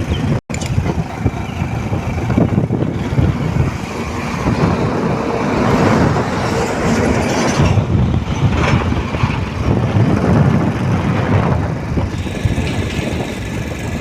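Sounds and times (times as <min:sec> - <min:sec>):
truck engine and road noise: 0:00.0 - 0:14.0
dense clatter: 0:05.7 - 0:14.0.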